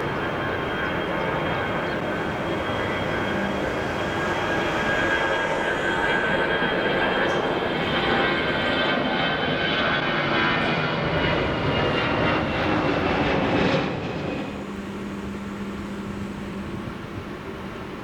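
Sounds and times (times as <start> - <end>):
jet engines at take-off power: 0.0 - 18.0
low steady rumble: 14.3 - 18.0
faint low hum: 14.4 - 18.0.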